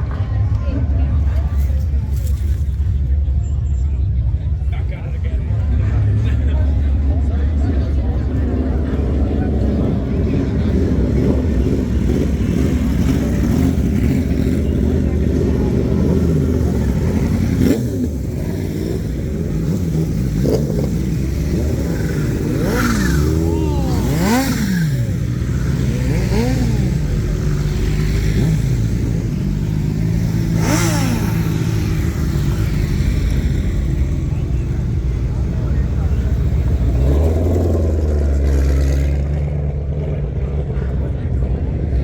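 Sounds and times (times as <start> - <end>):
car engines running: 0.0 - 42.0
quick engine revs: 11.1 - 39.6.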